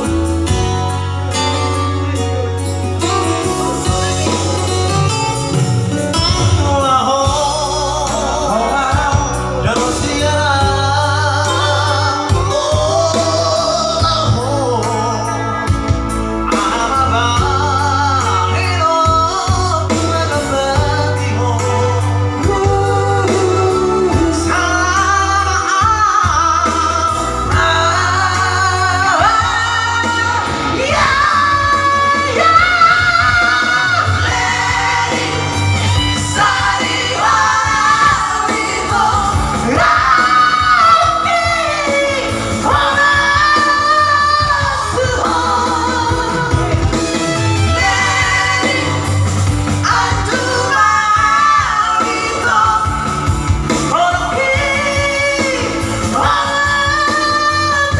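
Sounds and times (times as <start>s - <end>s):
instrumental accompaniment with bass: 0.0s - 57.9s
person singing: 0.0s - 57.9s.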